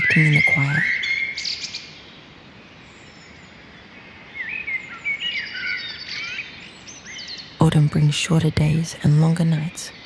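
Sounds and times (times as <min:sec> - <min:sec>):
birdsong chirps and whistles: 0:00.0 - 0:07.6
steady background hiss: 0:00.0 - 0:10.0.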